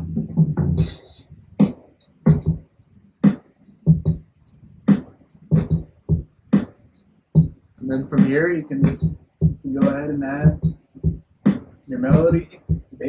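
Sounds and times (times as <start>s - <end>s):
open hi-hat hiss: 0.0s - 13.0s
closed hi-hat ticks: 6.5s - 13.0s.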